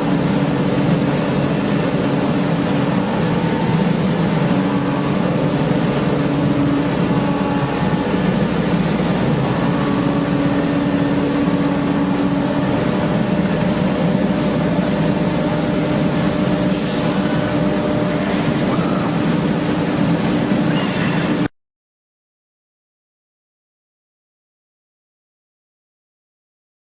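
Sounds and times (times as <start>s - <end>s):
industrial machinery drone: 0.0s - 21.5s.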